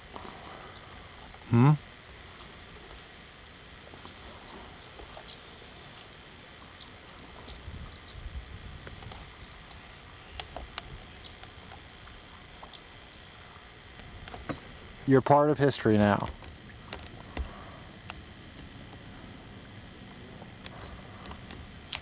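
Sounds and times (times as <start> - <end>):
small birds chirping: 0.5 - 8.4, 9.2 - 15.6, 20.7 - 22.0.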